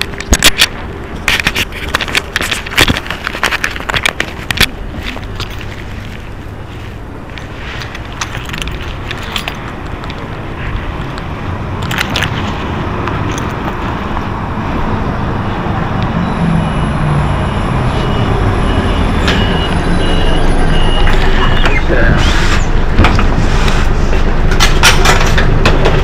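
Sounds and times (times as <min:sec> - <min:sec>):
sharp clicks and rattles: 0:00.0 - 0:06.3, 0:07.3 - 0:14.3, 0:22.9 - 0:26.0
bus diesel engine running: 0:00.0 - 0:26.0
road noise: 0:00.0 - 0:26.0.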